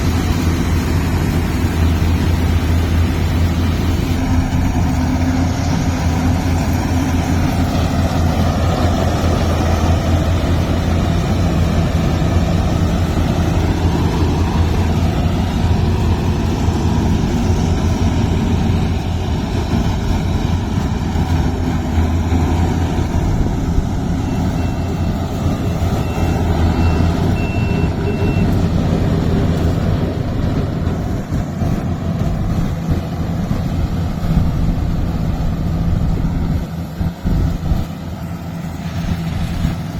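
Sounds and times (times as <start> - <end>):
diesel engine running under load: 0.0 - 39.9
short high-pitched beeps: 24.2 - 28.6.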